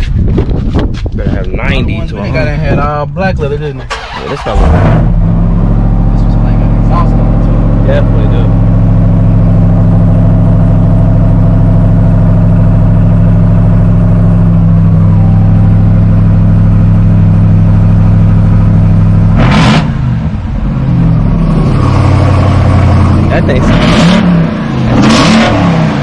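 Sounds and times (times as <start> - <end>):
truck engine idling loudly: 4.5 - 19.4, 20.0 - 23.7.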